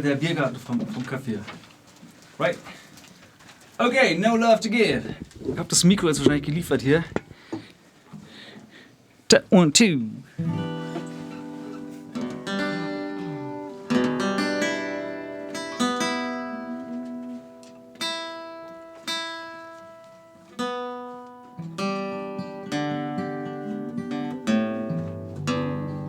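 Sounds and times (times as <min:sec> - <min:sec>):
acoustic guitar strumming chords: 0:10.4 - 0:26.0.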